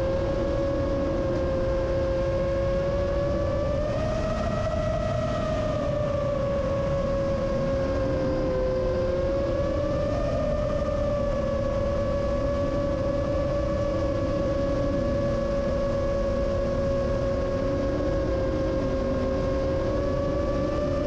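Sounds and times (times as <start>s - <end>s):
drone motors whining: 0.0s - 21.0s
wind rumble: 0.0s - 21.0s.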